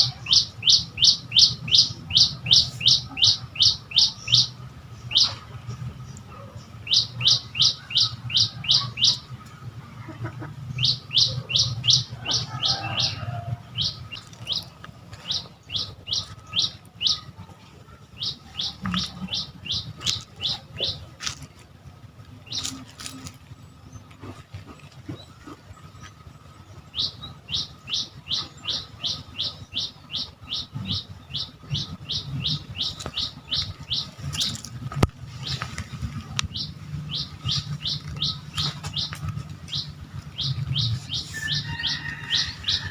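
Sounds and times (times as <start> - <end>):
small bird chirping: 0.0 - 9.7, 10.6 - 42.9.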